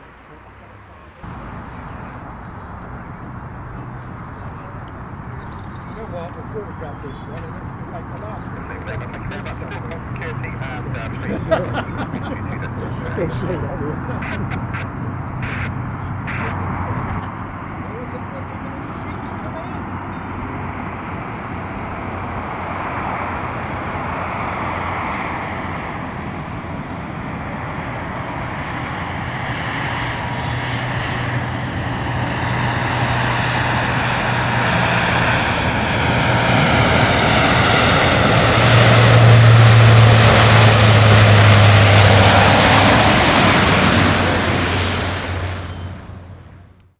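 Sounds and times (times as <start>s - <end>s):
aircraft engines roaring: 0.0s - 46.9s
high engine whine: 0.0s - 46.9s.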